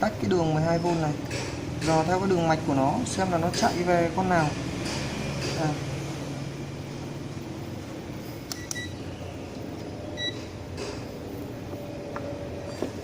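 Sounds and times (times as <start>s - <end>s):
steady low hum: 0.0s - 13.0s
short high beeps: 8.5s - 9.0s.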